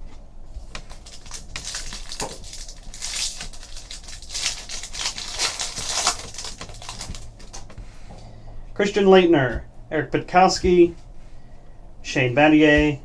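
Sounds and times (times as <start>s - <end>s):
pack wrappers crinkling: 0.6s - 7.9s
cards rustling: 0.6s - 8.6s.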